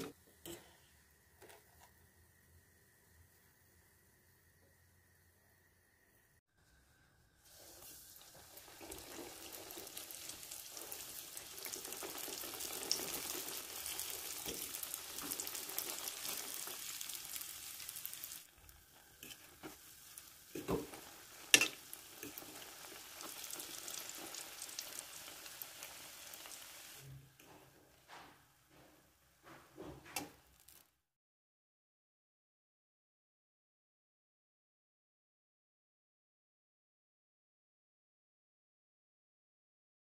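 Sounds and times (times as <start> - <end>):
donuts sizzling in hot oil: 0.0 - 27.2, 30.2 - 30.9.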